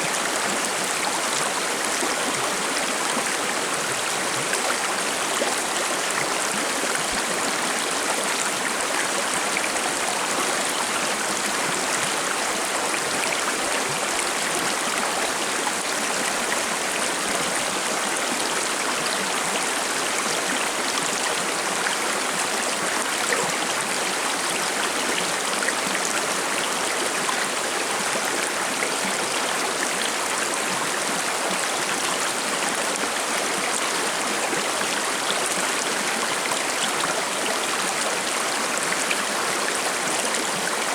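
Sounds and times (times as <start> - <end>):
stream babbling over rocks: 0.0 - 40.9.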